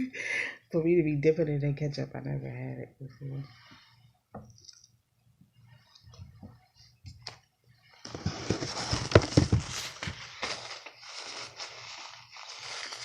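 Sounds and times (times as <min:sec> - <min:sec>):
wrapper crinkling and food crunching: 0:08.1 - 0:13.0.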